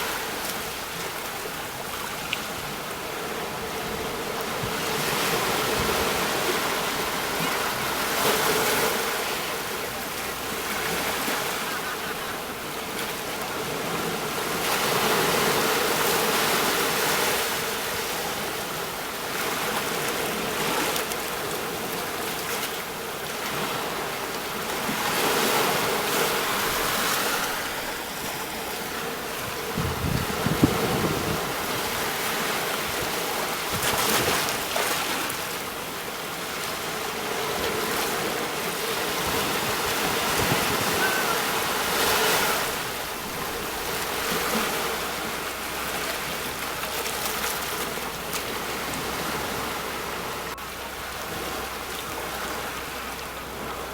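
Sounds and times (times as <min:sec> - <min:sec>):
sea waves breaking on shore: 0:00.0 - 0:53.9.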